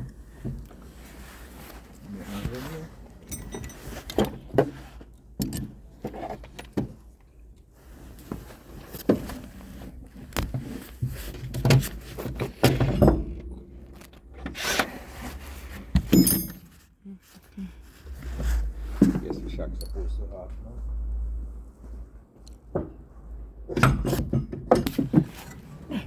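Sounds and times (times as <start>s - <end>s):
metal tools clinking and knocking: 3.2s - 4.4s, 16.1s - 16.8s, 19.8s - 20.1s.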